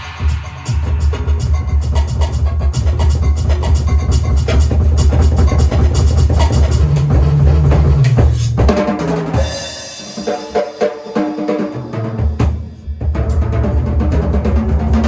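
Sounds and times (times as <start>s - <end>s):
music with held bass line: 0.0s - 8.4s
drum kit playing: 0.0s - 15.0s.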